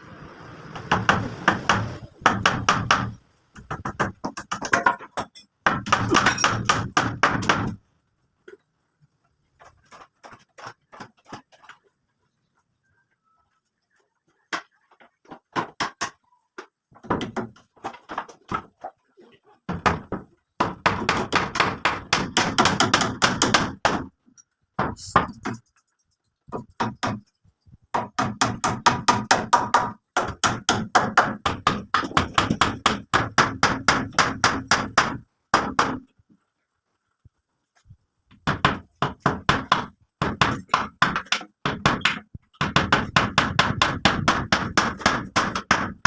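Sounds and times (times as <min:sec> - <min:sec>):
rapid hammering: 0:00.8 - 0:05.0, 0:05.6 - 0:07.8, 0:19.7 - 0:24.1, 0:26.5 - 0:27.3, 0:27.9 - 0:36.1, 0:38.4 - 0:46.0.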